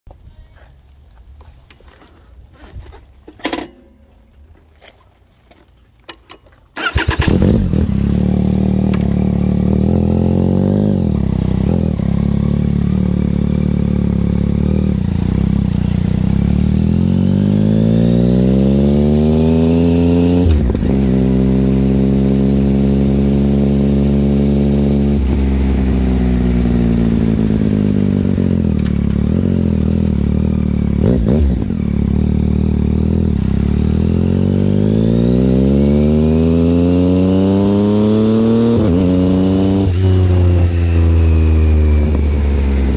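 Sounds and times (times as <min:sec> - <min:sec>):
motorcycle engine revving: 0:06.8 - 0:42.9.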